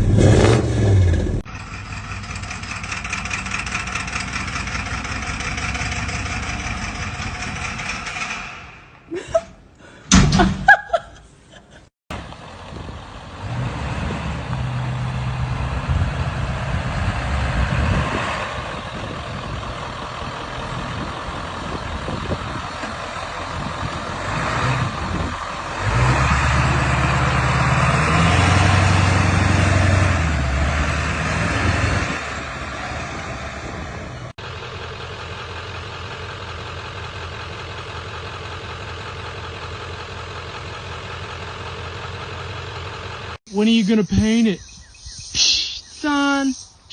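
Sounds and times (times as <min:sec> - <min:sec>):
truck engine revving: 0:00.0 - 0:09.2, 0:12.1 - 0:44.2
truck engine idling: 0:01.2 - 0:11.5, 0:12.1 - 0:13.9, 0:14.5 - 0:30.9, 0:32.4 - 0:46.9.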